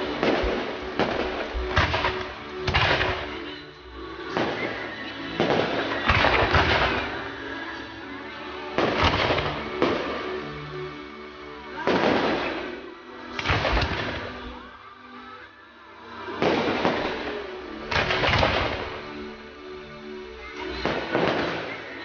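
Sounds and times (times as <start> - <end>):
fireworks bangs: 0.0 - 3.6, 4.3 - 7.4, 8.8 - 10.4, 11.8 - 14.5, 16.4 - 19.1, 20.7 - 22.0
music with long held notes: 0.0 - 22.0.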